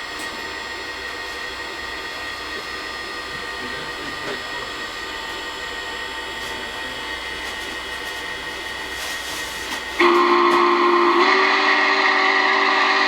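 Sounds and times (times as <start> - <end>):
model steam whistle: 9.4 - 13.0.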